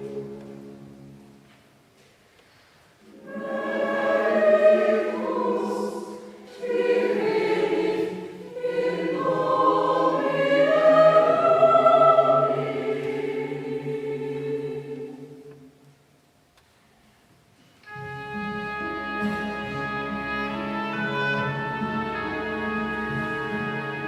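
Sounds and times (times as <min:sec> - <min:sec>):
mixed choir singing: 0:03.0 - 0:15.8.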